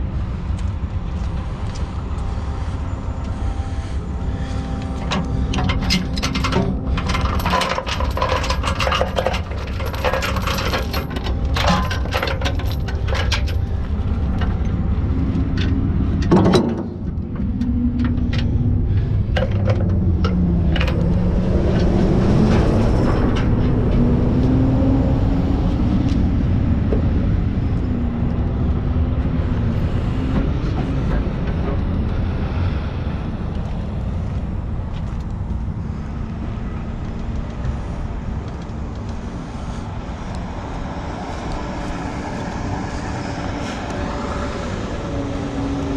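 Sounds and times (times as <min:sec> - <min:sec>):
heavy truck engine droning: 0:00.0 - 0:45.9
metallic clinks and rattles: 0:05.0 - 0:14.8.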